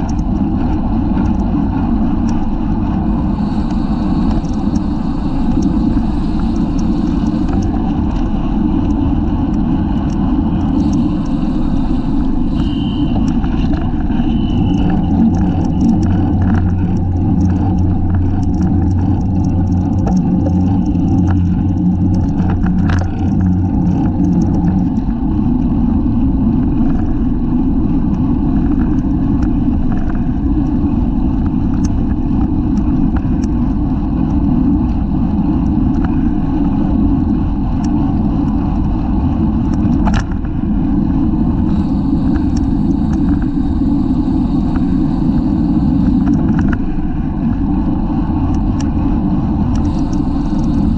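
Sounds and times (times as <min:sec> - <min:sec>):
wind and road noise rumbling: 0:00.0 - 0:50.9
small clicks: 0:41.7 - 0:46.9, 0:49.6 - 0:50.9.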